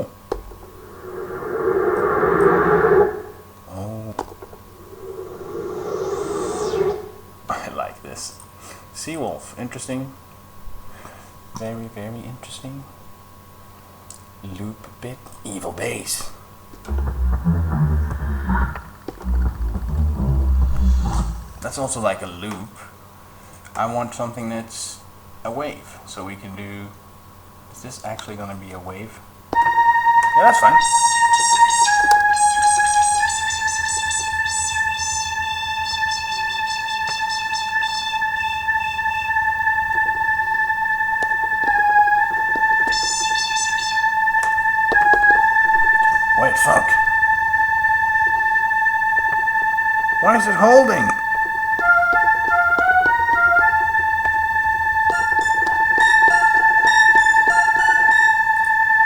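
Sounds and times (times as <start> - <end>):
organ-like synth drone: 4.5 - 7.5, 16.9 - 22.2, 29.6 - 59.0
buzzy synth note: 16.9 - 22.1.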